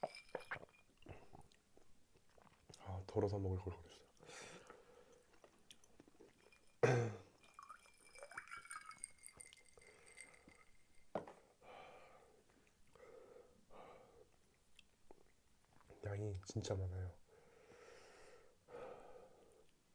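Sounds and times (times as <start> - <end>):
chewing and mouth sounds: 0.1 - 2.8.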